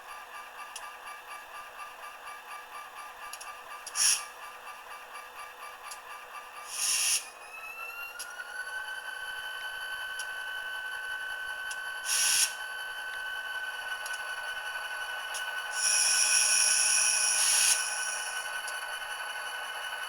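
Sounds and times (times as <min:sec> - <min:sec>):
diesel engine whine from small speaker: 0:00.0 - 0:20.0
air hiss bursts: 0:06.7 - 0:07.2, 0:12.1 - 0:12.6.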